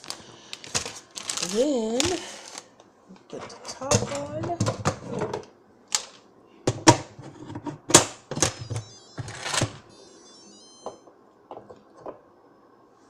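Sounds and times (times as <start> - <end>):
electronic beeps: 8.5 - 11.1.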